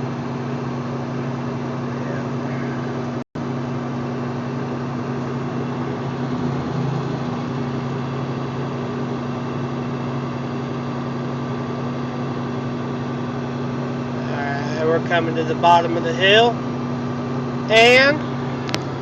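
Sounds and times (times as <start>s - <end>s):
diesel truck engine running: 0.0s - 19.0s
road noise: 4.6s - 19.0s.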